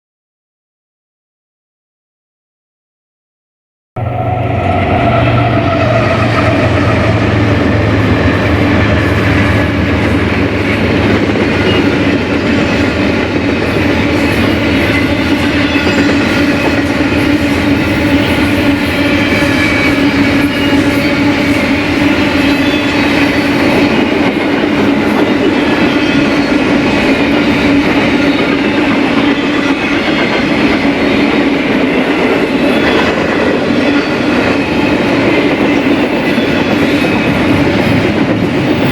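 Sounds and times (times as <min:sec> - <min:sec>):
locomotive engine hum: 0:04.0 - 0:25.8
freight train wheels rumbling: 0:04.0 - 0:38.9.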